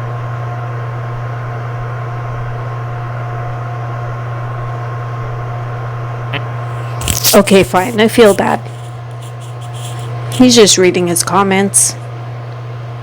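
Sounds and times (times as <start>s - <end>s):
steady low hum: 4.6s - 12.4s
even hiss: 6.6s - 10.8s.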